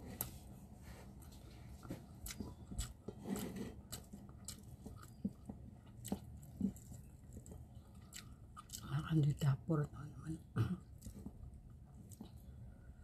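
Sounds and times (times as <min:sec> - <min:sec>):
person chewing with wet smacks: 0:01.7 - 0:09.1, 0:10.9 - 0:12.5.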